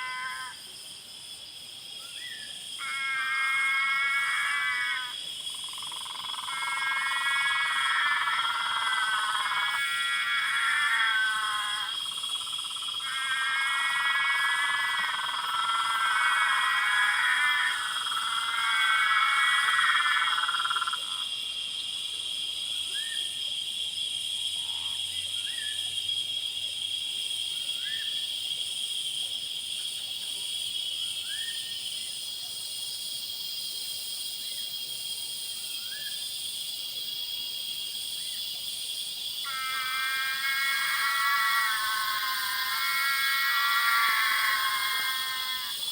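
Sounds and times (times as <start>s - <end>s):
high-pitched insect trilling: 0.0s - 0.8s, 1.8s - 22.0s, 30.6s - 45.9s
buzzing frog call: 2.8s - 21.2s, 39.4s - 45.9s.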